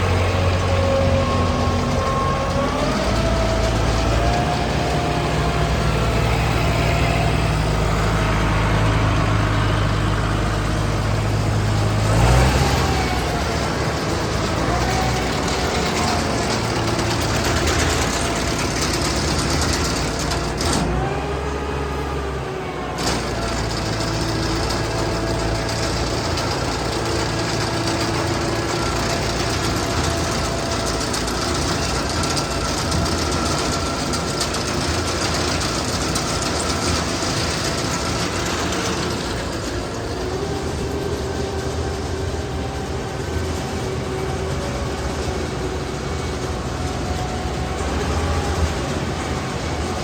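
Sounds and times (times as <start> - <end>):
heavy farm machinery engine running: 0.0 - 50.0.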